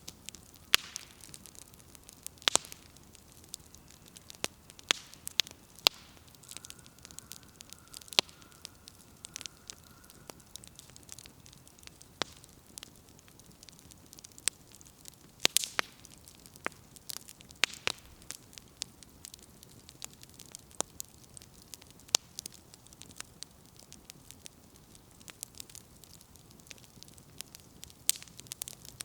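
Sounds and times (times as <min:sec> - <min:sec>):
faint hiss: 0:00.0 - 0:19.2
campfire crackling and popping: 0:00.0 - 0:29.0.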